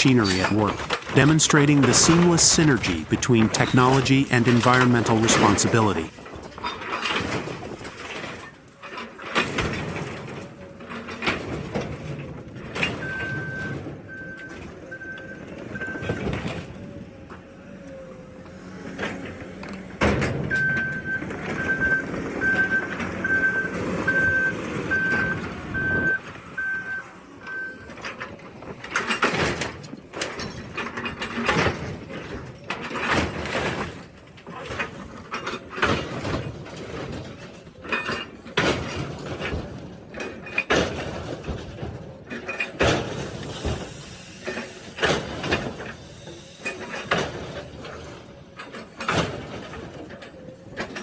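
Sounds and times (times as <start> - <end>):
reversing alarm beeping: 20.5 - 27.8.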